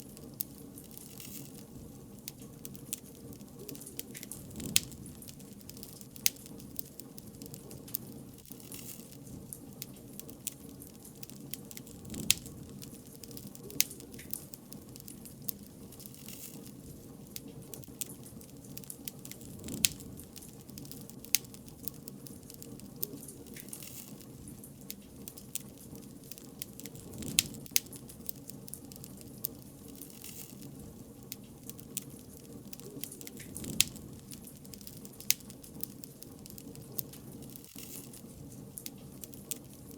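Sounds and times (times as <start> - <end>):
bonfire pops and snaps: 0.0 - 39.9
low rush of burning: 0.0 - 39.9.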